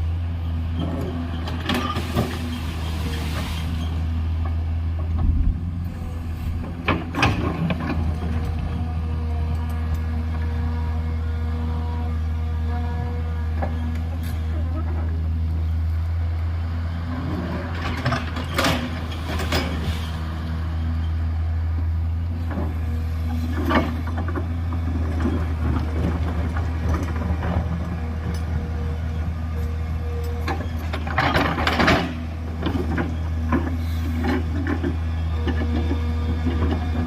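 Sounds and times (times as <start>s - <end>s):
diesel engine running: 0.0s - 37.0s
bucket scraping earth and rock: 1.7s - 4.2s.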